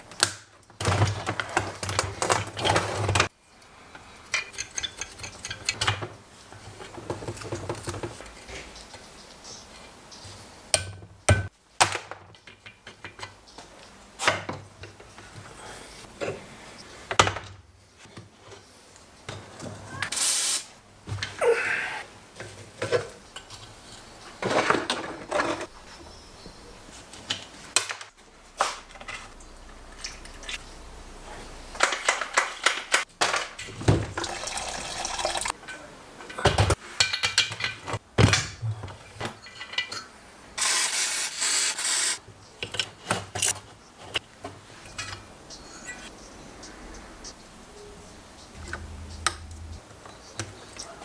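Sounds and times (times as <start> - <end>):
short bursts of hissing: 20.1 - 20.8, 40.6 - 42.2.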